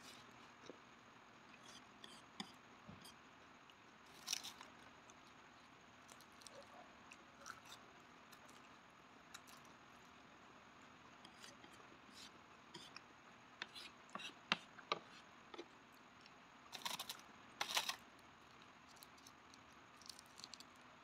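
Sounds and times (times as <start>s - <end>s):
chewing noodles: 6.0s - 10.1s, 16.2s - 20.8s.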